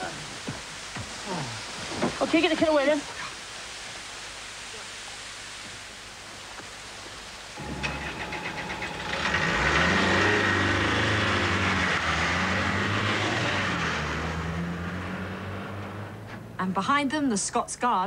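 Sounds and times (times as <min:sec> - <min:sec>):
engine rattle: 0:07.6 - 0:14.0
vehicle engine starting and revving: 0:07.6 - 0:16.6.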